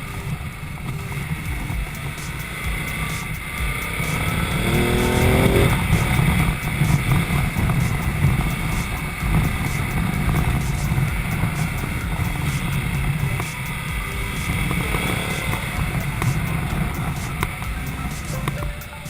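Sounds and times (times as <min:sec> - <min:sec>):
motorcycle engine accelerating: 0:00.0 - 0:19.0
rush of noise: 0:00.0 - 0:19.0.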